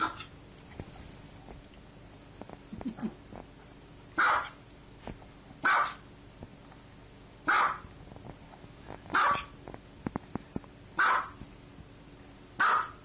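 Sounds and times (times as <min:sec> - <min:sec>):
dog barking: 0:00.0 - 0:00.3, 0:04.2 - 0:04.6, 0:05.6 - 0:06.0, 0:07.4 - 0:07.9, 0:09.1 - 0:09.5, 0:11.0 - 0:11.4, 0:12.6 - 0:13.0.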